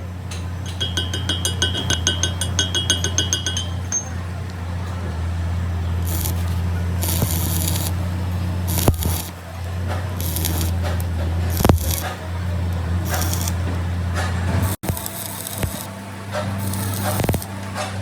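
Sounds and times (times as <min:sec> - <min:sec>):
workshop machinery humming: 0:00.0 - 0:18.0
metallic ticking with ringing tone: 0:00.3 - 0:09.3, 0:10.2 - 0:12.0
hiss bursts: 0:05.4 - 0:18.0.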